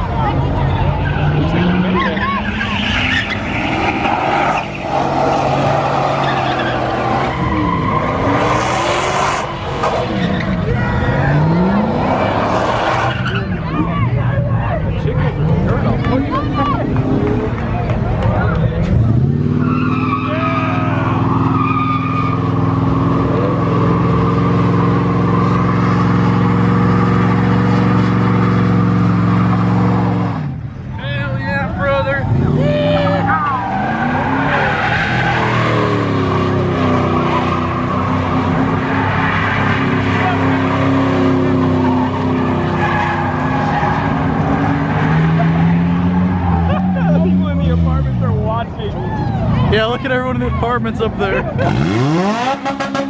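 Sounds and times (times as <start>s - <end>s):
car engine at high revs: 0.0s - 30.9s, 31.5s - 48.8s, 49.4s - 53.0s
tyres squealing on pavement: 0.4s - 14.7s, 18.5s - 30.5s, 32.0s - 48.1s.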